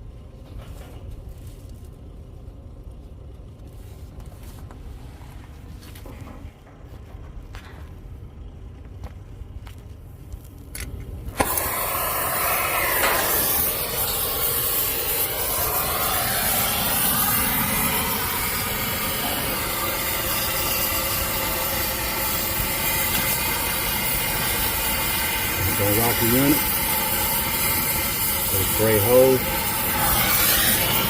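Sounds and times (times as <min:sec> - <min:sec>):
torch hissing loudly: 0:11.3 - 0:31.0.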